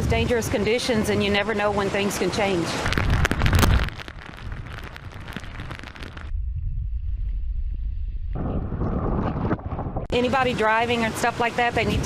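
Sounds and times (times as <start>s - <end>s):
low rumble of wind: 0.0s - 12.0s
wind: 0.0s - 12.0s
rain: 1.1s - 6.3s.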